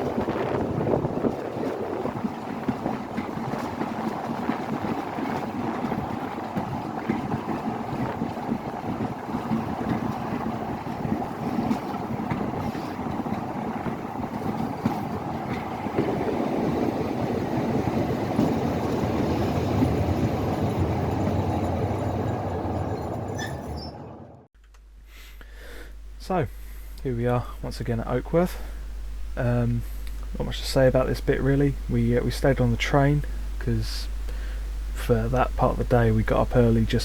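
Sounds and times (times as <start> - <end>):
wind on microphone: 0.0 - 22.0
train rumbling: 0.0 - 24.5, 27.0 - 37.0.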